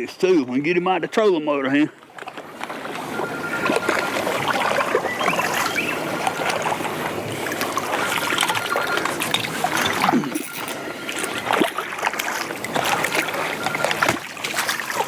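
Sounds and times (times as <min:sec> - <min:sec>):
water lapping against boat hull: 0:01.0 - 0:15.0
clicks and knocks in boat: 0:11.2 - 0:15.0.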